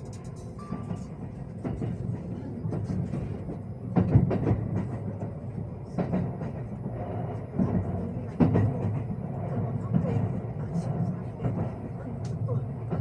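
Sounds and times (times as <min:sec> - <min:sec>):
sharp knocks of train: 0:00.0 - 0:10.4
train rumbling: 0:00.0 - 0:13.0.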